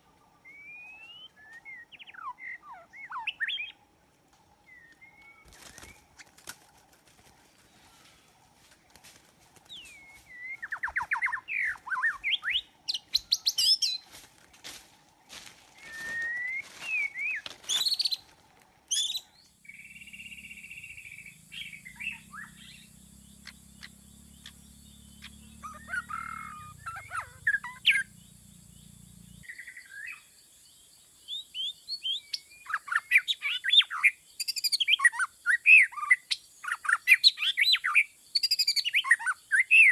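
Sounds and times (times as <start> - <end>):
birds chirping: 0.0 - 39.9
low steady hum: 18.3 - 29.4.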